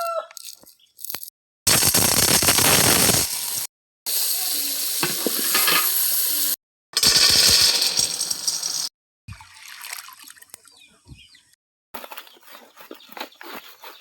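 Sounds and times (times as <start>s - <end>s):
food sizzling in a pan: 1.8s - 6.6s.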